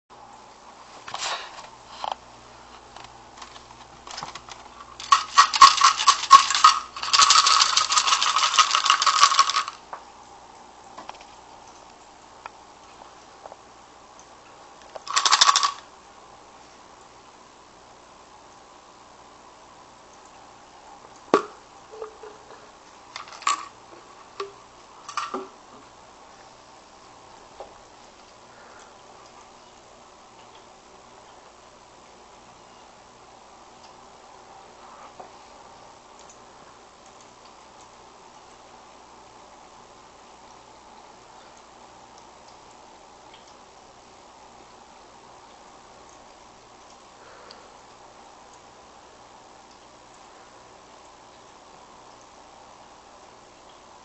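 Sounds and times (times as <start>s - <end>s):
treats rattling in container: 4.1s - 9.8s, 15.0s - 15.8s, 23.1s - 23.8s, 25.1s - 25.5s.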